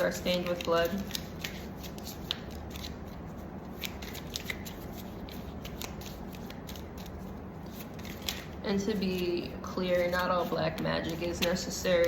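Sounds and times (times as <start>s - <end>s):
cards being shuffled: 0.0s - 12.0s
low steady hum: 0.0s - 12.0s.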